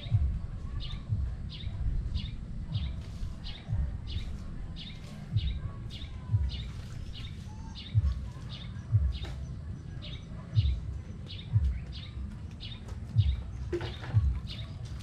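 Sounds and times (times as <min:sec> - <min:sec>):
bird chirping: 0:00.0 - 0:15.0
low dull thuds: 0:00.0 - 0:15.0.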